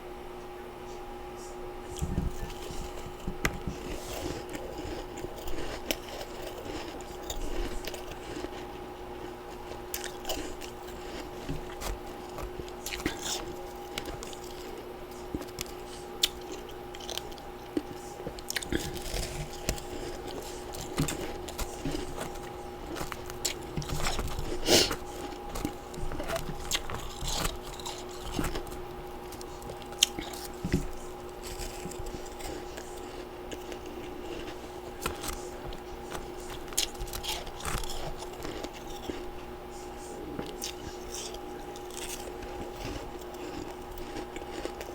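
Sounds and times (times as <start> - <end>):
faint steady hum: 0.0 - 44.9
ice being crunched and chewed: 1.9 - 44.9.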